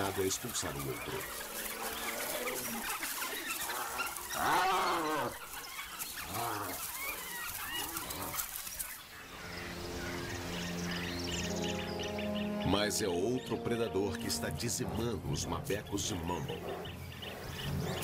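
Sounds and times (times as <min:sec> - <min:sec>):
wild dogs and hyenas yelping: 0:00.0 - 0:09.1, 0:16.2 - 0:18.0.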